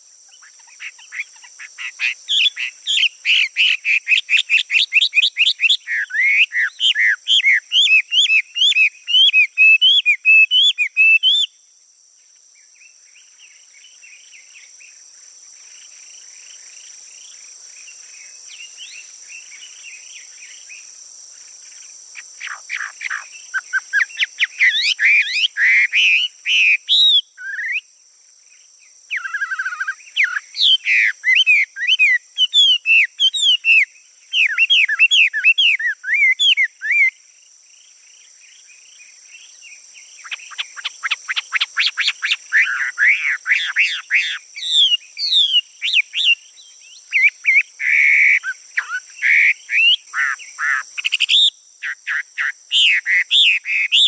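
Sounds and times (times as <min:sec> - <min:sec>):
high insect buzz: 0:00.0 - 0:54.0
songbird whistling song: 0:00.3 - 0:11.6, 0:22.4 - 0:27.9, 0:29.1 - 0:37.2, 0:38.5 - 0:54.0.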